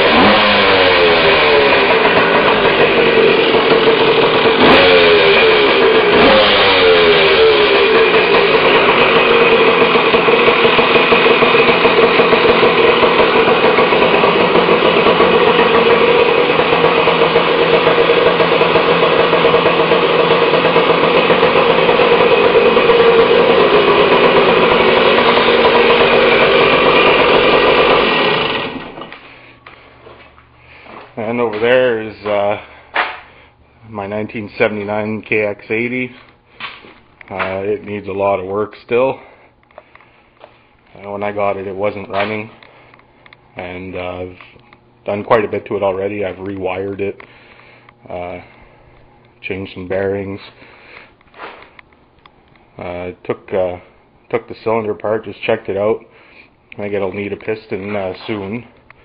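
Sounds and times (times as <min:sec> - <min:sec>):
motorcycle engine revving: 0:00.0 - 0:33.3, 0:43.7 - 0:47.1.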